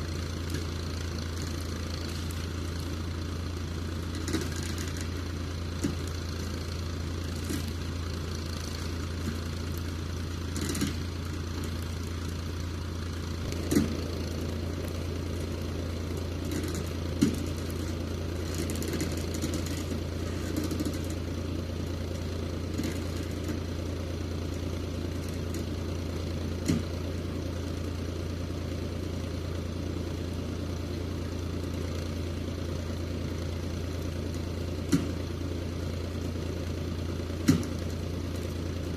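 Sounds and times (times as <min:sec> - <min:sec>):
tractor engine running: 0:00.0 - 0:38.9
sharp knocks and clanks: 0:13.4 - 0:14.1.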